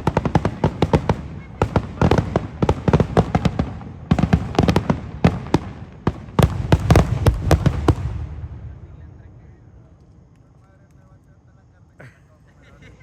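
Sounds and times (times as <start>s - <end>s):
fireworks bangs: 0.0s - 10.3s.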